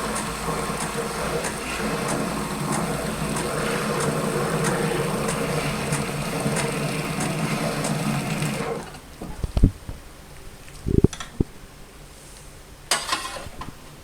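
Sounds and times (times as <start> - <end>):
faint ticking: 0.0 - 8.7
coffee machine humming: 0.0 - 9.2.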